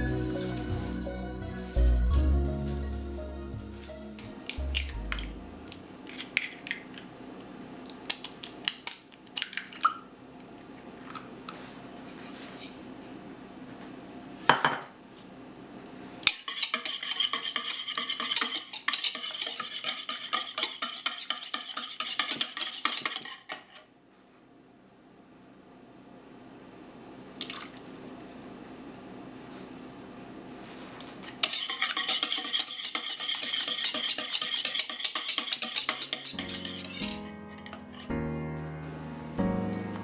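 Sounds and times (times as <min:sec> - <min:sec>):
utensils clinking against dishes: 0:16.3 - 0:23.5, 0:31.4 - 0:38.1
metal utensil stirring in bowl: 0:16.3 - 0:23.6, 0:31.2 - 0:38.1.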